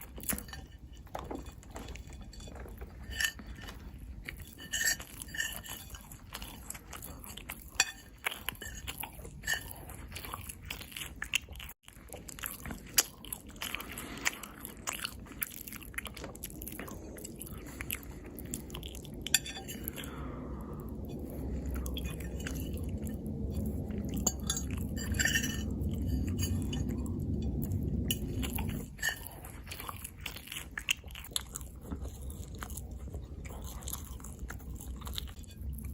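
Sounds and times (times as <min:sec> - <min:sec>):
crunchy chewing: 0:00.0 - 0:35.9
low rumble: 0:13.7 - 0:35.9.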